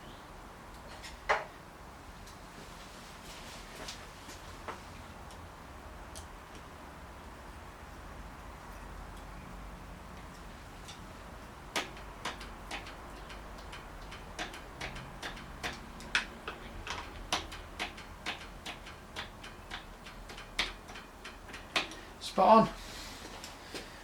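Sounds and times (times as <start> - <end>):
faint steady hum: 0.0 - 24.0
sharp clicks and taps: 6.1 - 6.7, 10.2 - 22.0.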